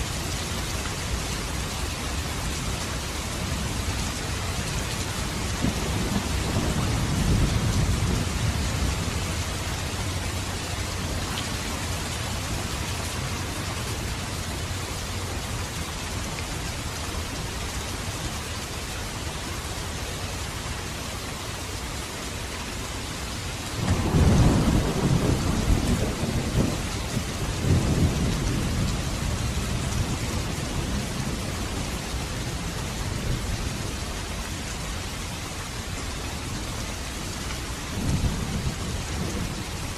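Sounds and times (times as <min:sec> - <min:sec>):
steady rain falling: 0:00.0 - 0:39.9
thunder rolling: 0:23.8 - 0:31.4.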